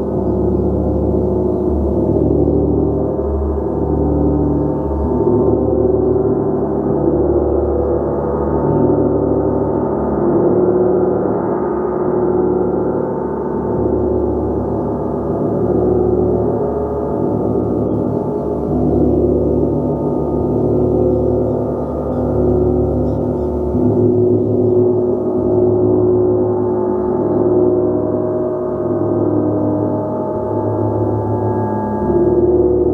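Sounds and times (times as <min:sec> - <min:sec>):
gong ringing: 0:12.7 - 0:32.9.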